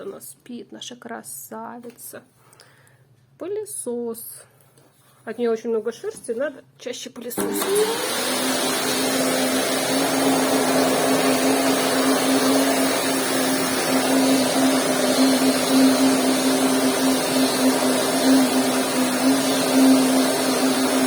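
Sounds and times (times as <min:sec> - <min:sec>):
vacuum cleaner running: 0:07.4 - 0:21.0.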